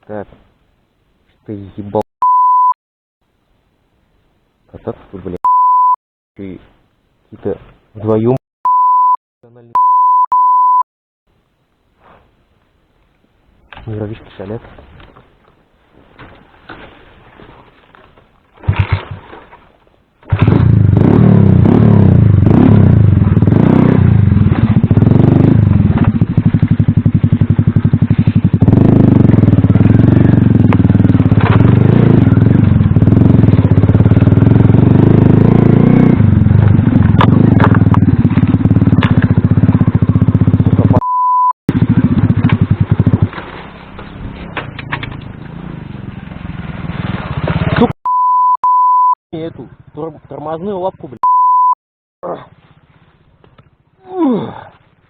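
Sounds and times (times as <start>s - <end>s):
short beep: 2.2s - 2.8s, 5.4s - 6.0s, 8.7s - 10.8s, 41.0s - 41.6s, 48.0s - 49.2s, 51.2s - 51.8s
small motorcycle engine revving: 20.2s - 41.0s, 41.7s - 47.9s.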